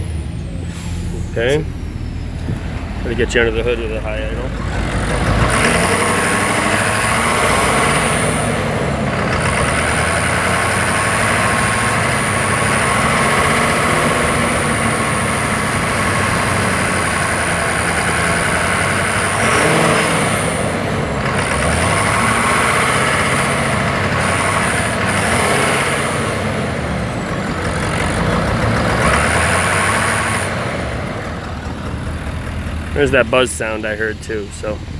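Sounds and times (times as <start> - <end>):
diesel engine idling: 0.0 - 34.9
buzz over engine: 4.9 - 31.3.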